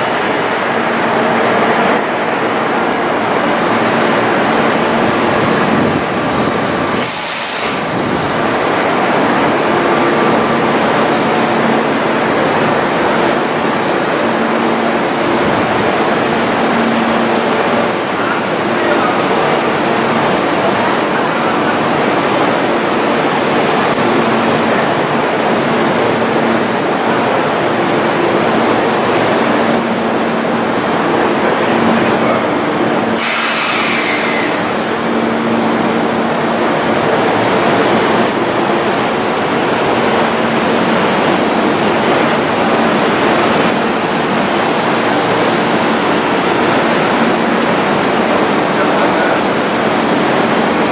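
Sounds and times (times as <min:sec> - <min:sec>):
train equipment fan rushing: 0:00.1 - 0:50.9
short hiss: 0:07.0 - 0:07.8, 0:33.2 - 0:34.5.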